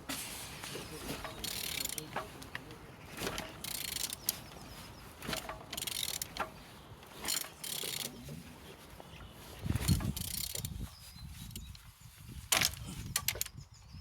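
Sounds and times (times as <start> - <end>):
ratchet clicks: 1.2 - 2.4, 3.2 - 4.4, 5.2 - 6.5, 7.2 - 8.1, 9.8 - 10.8
ratchet wrench rasping: 1.4 - 2.1, 3.3 - 4.4, 5.2 - 6.5, 7.2 - 8.1, 9.9 - 10.8.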